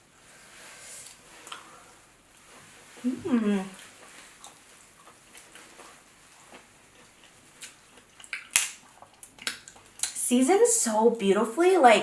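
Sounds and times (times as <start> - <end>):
crab shell crackling: 7.3 - 10.2
wet clicks and mouth smacks: 7.6 - 10.2.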